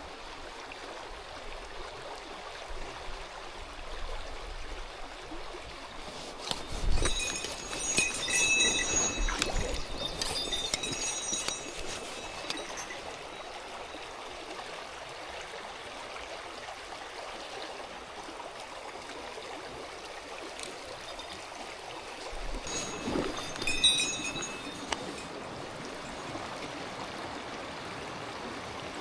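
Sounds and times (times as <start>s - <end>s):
stream water running: 0.0s - 29.0s
high tinkling notes: 6.2s - 14.4s, 22.3s - 26.4s.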